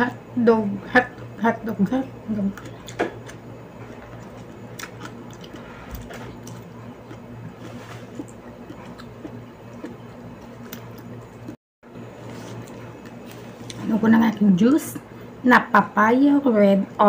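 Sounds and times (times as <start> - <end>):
wet chewing sounds: 2.4 - 11.6.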